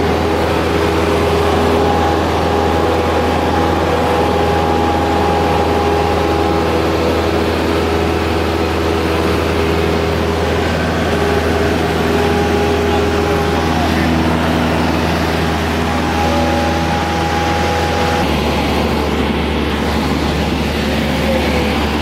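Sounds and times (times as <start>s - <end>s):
light aircraft engine droning: 0.0s - 22.0s.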